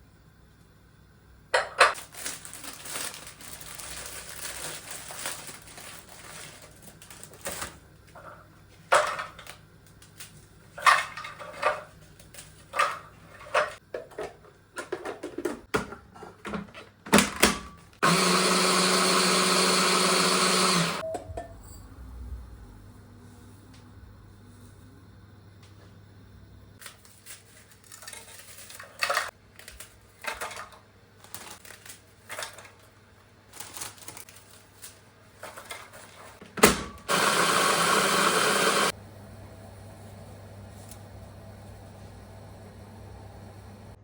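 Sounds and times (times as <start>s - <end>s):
kitchen knocks and clicks: 12.7s - 17.9s
electric blender running: 18.0s - 21.0s, 37.1s - 44.0s.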